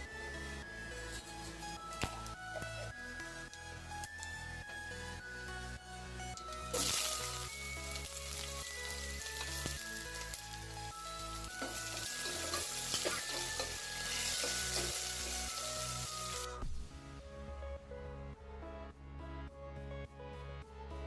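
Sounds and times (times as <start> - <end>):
background music with steady beat: 0.0 - 21.0
chillies sizzling in hot oil: 6.4 - 16.5.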